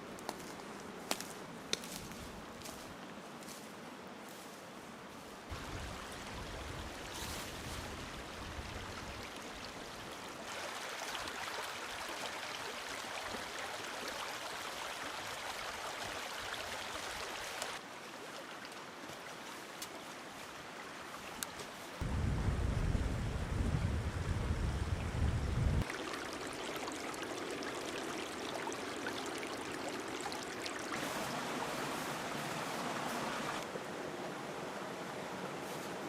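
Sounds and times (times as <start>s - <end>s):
running water in stream: 5.5s - 22.0s, 25.8s - 36.0s.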